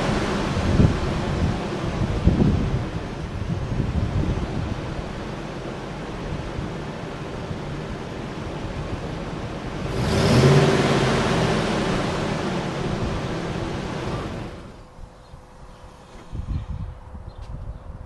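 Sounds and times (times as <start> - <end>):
engine running and revving: 0.0 - 3.0, 8.7 - 14.8.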